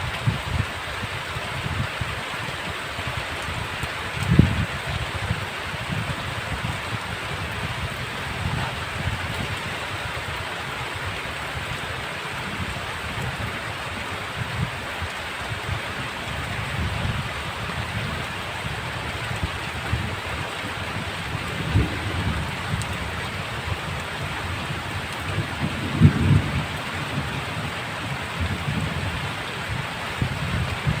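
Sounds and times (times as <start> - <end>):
heavy rain pouring: 0.0 - 31.0
low rumbles and thuds: 20.9 - 27.8.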